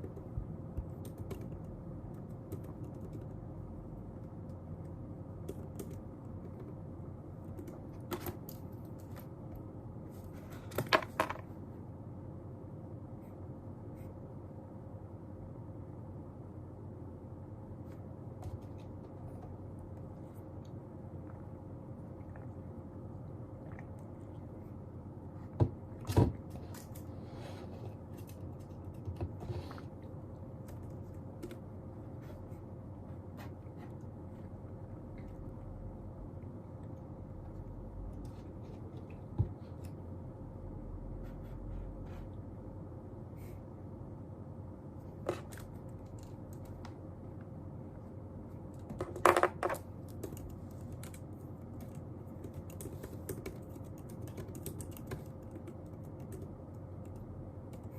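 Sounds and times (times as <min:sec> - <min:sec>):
faint hum: 0:00.0 - 0:57.9
small objects tapping on desk: 0:48.9 - 0:49.8.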